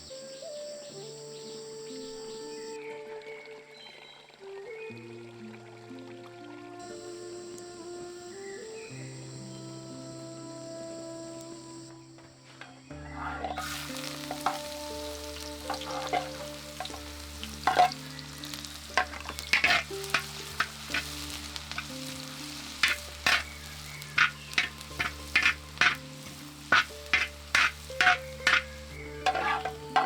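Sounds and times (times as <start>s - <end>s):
soft background music: 0.0s - 30.0s
food sizzling in a pan: 6.8s - 30.0s
utensil scraping and clacking on pan: 12.6s - 30.0s.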